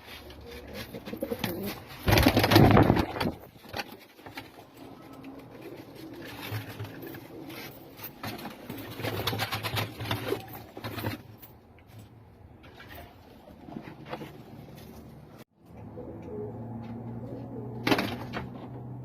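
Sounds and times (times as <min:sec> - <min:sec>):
pigeons cooing: 0:00.4 - 0:02.0, 0:15.8 - 0:17.9.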